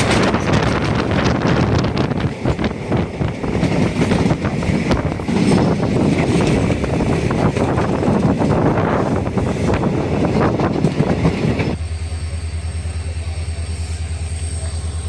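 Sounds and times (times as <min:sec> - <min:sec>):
wind buffeting microphone: 0:00.0 - 0:11.8
train wheels rumbling on rails: 0:00.0 - 0:15.0.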